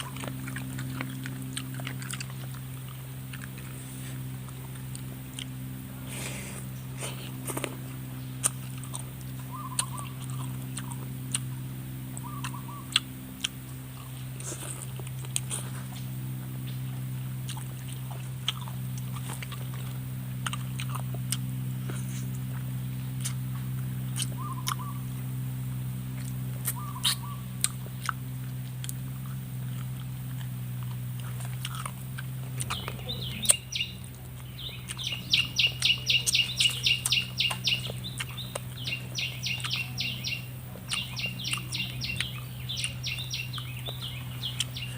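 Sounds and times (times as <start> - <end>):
bird chirping: 0.0 - 14.5, 22.2 - 28.2, 32.1 - 44.9
close-up chewing and crunching: 0.0 - 44.9
steady low hum: 0.0 - 44.9.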